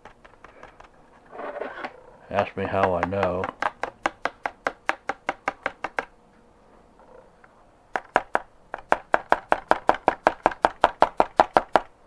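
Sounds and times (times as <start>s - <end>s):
rapid tapping on container: 2.4s - 6.1s.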